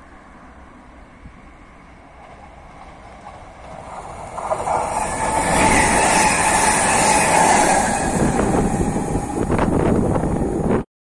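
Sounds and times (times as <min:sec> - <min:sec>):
steady train whine: 0:00.0 - 0:10.9
train wheels rumbling on rails: 0:00.9 - 0:10.8.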